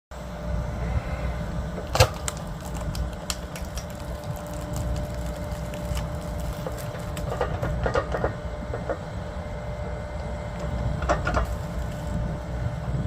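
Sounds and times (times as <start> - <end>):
steady low rumble: 0.1 - 13.0
firewood splitting crack: 1.8 - 8.4, 10.6 - 12.4.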